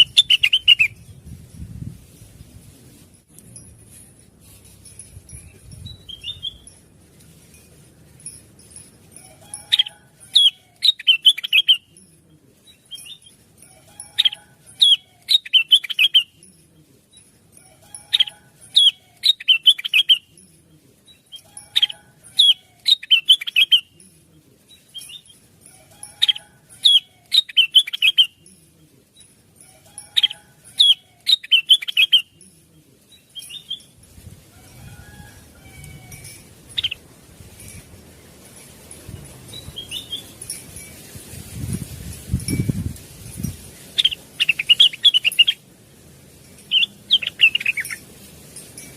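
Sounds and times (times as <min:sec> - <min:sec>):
bird whistled song: 0:00.0 - 0:01.1, 0:05.8 - 0:06.8, 0:09.5 - 0:12.0, 0:14.0 - 0:16.4, 0:18.1 - 0:20.3, 0:21.1 - 0:24.0, 0:26.0 - 0:28.5, 0:30.0 - 0:32.4, 0:33.1 - 0:34.0, 0:39.5 - 0:40.4, 0:44.0 - 0:45.6, 0:46.7 - 0:48.0.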